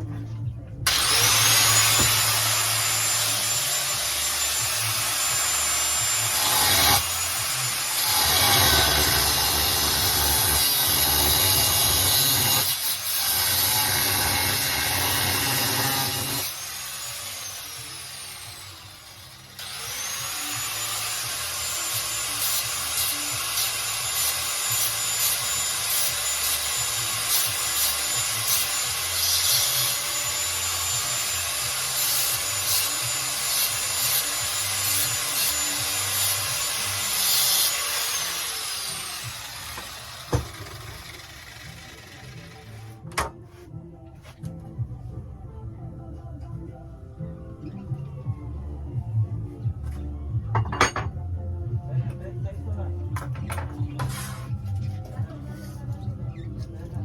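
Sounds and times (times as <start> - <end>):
grinder cutting metal: 0.9 - 43.0.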